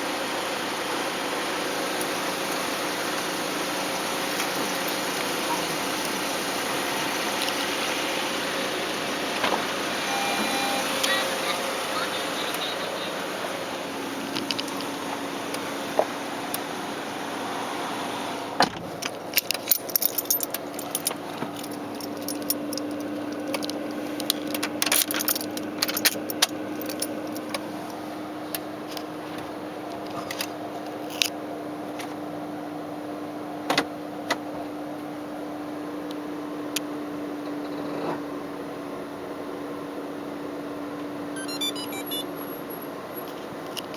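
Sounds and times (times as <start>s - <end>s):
keys jangling: 4.2s - 6.2s, 14.3s - 15.0s, 19.0s - 27.6s, 30.0s - 31.3s.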